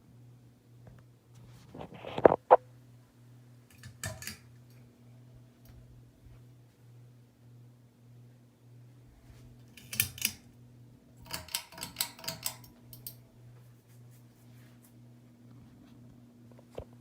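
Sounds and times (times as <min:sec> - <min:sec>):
ceiling fan motor hum: 0:00.0 - 0:17.0
metallic clicks and rattles: 0:09.7 - 0:10.5, 0:11.2 - 0:13.2.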